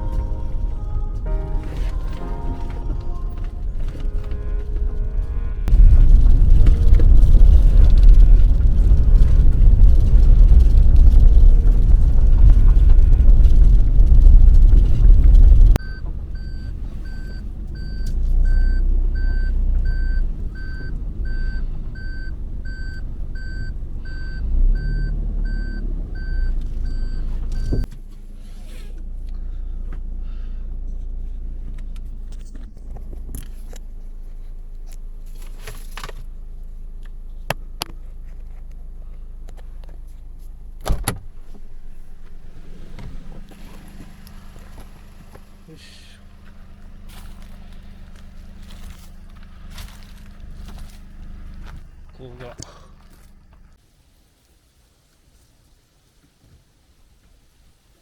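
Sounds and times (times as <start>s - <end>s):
low hum: 0.0s - 27.9s
car engine rumble: 0.0s - 53.8s
reverse warning beeps: 15.8s - 27.9s.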